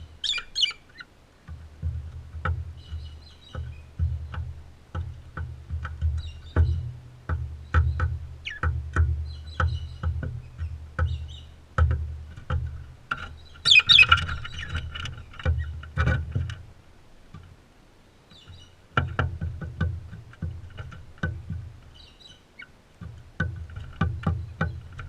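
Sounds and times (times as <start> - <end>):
faint bird chirps: 0.0 - 1.1, 7.6 - 11.6, 13.3 - 14.8, 18.0 - 18.8
birds pecking at feeder: 0.0 - 25.0
bird chattering call: 0.2 - 1.1, 8.4 - 8.6, 13.4 - 14.8.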